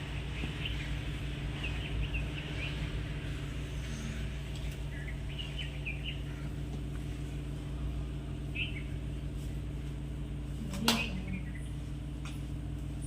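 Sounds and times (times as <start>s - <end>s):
bird chirps: 0.0s - 3.0s, 4.8s - 6.6s, 8.5s - 9.0s
low mechanical hum: 0.0s - 13.0s.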